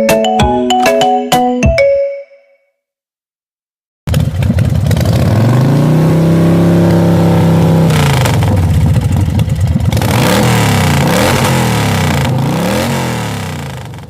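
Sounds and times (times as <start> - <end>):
motorcycle engine revving: 4.1 - 14.0.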